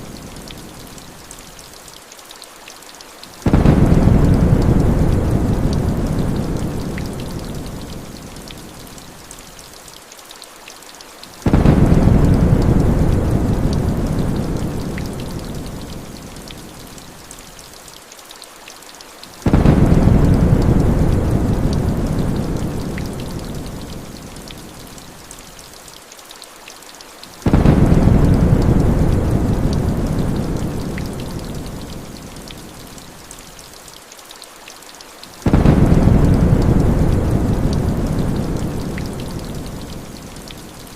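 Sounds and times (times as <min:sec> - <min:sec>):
heavy rain: 0:00.0 - 0:40.9
patter of raindrops: 0:00.0 - 0:40.9
deep thunder rumble: 0:03.5 - 0:07.5, 0:11.5 - 0:15.5, 0:19.5 - 0:23.5, 0:27.5 - 0:31.5, 0:35.5 - 0:39.9.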